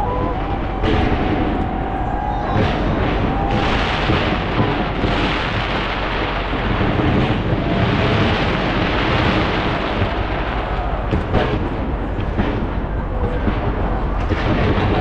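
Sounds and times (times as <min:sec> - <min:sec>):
fireworks rumble and crackling: 0:00.0 - 0:15.0
sharp firework bangs: 0:00.0 - 0:15.0.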